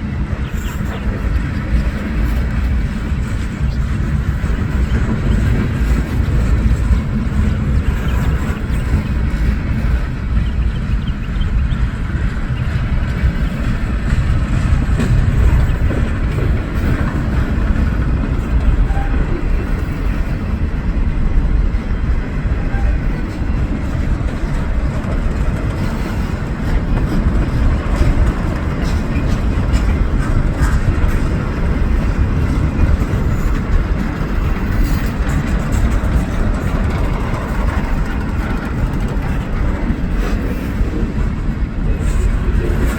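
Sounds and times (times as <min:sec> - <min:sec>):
train wheels rumbling on rails: 0:00.0 - 0:42.9
faint rail clicks: 0:22.7 - 0:42.9.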